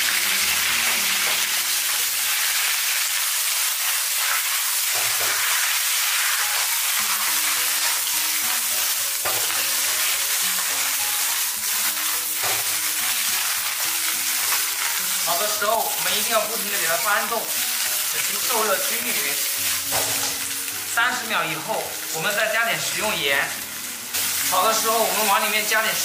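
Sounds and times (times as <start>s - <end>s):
vegetables sizzling in a wok: 0.0s - 26.0s.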